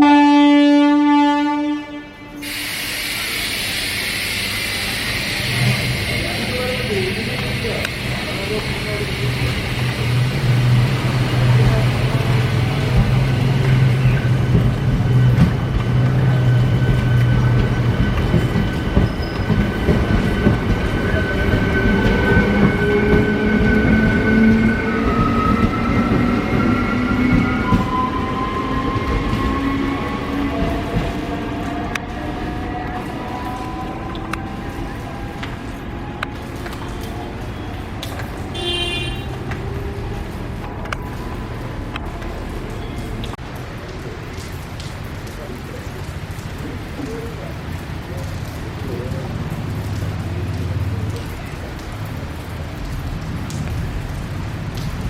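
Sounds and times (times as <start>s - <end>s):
train horn blast: 0.0s - 2.6s, 38.5s - 40.0s
train rumbling on rails: 0.9s - 55.0s.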